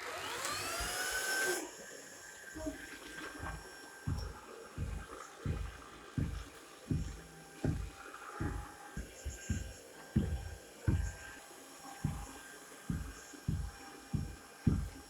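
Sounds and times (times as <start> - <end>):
dull low thumps: 3.4 - 11.3, 12.0 - 15.0.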